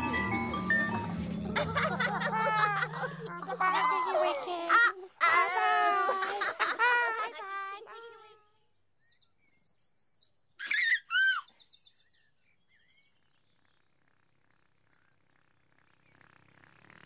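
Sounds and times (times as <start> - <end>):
small birds chirping: 6.8 - 17.0.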